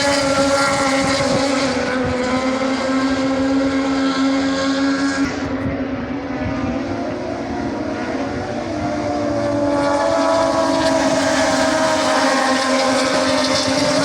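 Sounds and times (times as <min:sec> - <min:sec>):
racing motorcycle engine revving: 0:00.0 - 0:14.0.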